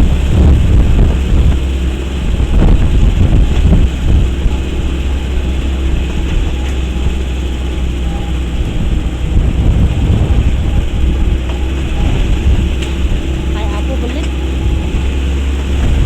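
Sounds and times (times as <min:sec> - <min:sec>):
vehicle rumbling on rough road: 0:00.0 - 0:16.0
wind buffeting microphone: 0:00.0 - 0:16.0.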